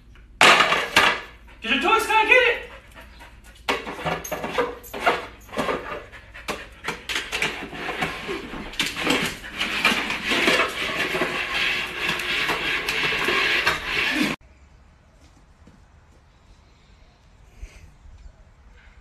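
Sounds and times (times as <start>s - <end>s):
plastic dish knocking and scraping: 3.7s - 14.4s.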